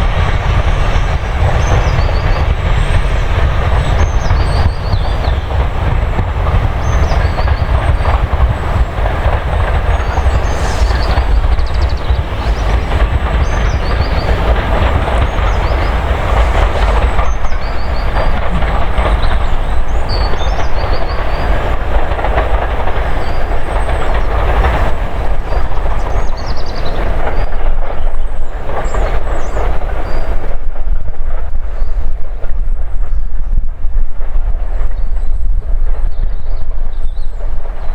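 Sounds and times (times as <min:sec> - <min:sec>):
wheels clacking over rail joints: 0:00.0 - 0:33.2
train rumbling past: 0:00.0 - 0:37.9.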